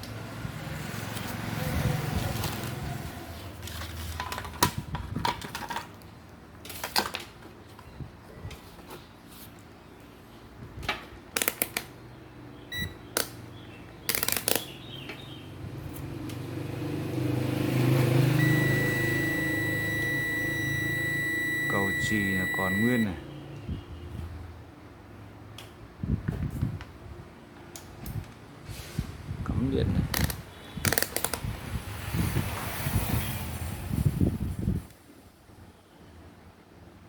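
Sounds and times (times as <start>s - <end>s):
small parts clicking and knocking: 11.3s - 11.9s, 14.1s - 14.7s
brief beep: 12.7s - 13.0s, 18.4s - 23.2s
multimeter continuity beep: 12.7s - 13.0s, 18.4s - 23.2s.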